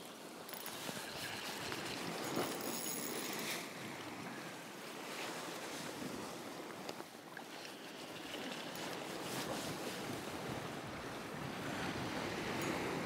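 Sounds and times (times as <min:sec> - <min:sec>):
wind buffeting microphone: 0:09.2 - 0:13.0.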